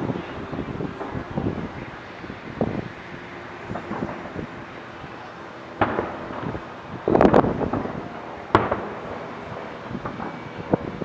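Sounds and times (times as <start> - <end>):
distant firework bangs: 3.6 - 11.0.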